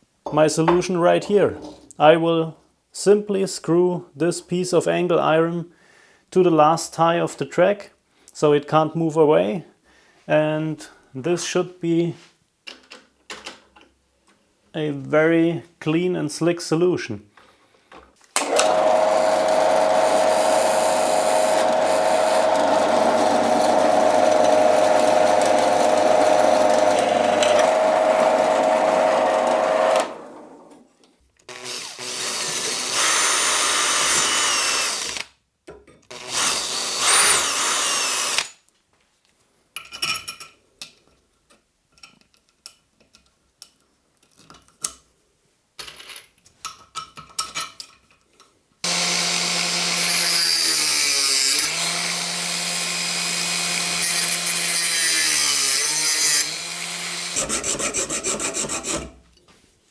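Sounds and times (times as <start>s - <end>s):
power drill whining: 18.4s - 30.9s, 31.5s - 35.3s, 36.1s - 38.5s, 48.8s - 59.0s.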